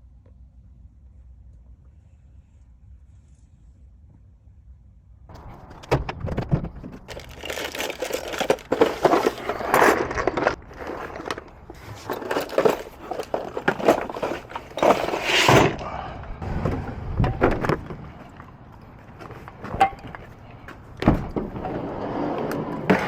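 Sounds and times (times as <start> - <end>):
rustling and crinkling: 5.3 - 15.8, 17.6 - 23.0.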